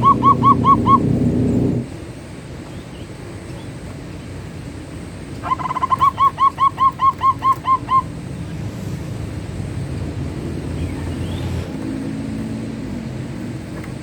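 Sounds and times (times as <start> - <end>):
dove cooing: 0.0 - 1.9, 5.4 - 8.6
low hum: 0.0 - 2.5, 7.8 - 14.0.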